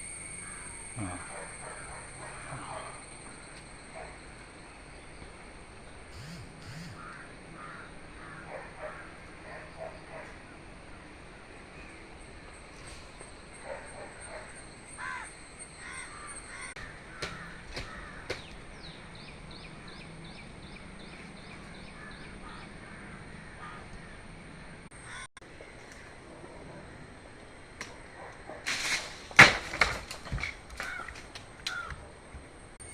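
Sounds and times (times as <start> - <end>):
outdoor background hiss: 0.0 - 32.9
crows cawing: 0.4 - 3.5, 6.6 - 9.2, 15.0 - 19.2, 21.9 - 24.3, 25.0 - 25.3, 30.8 - 32.0.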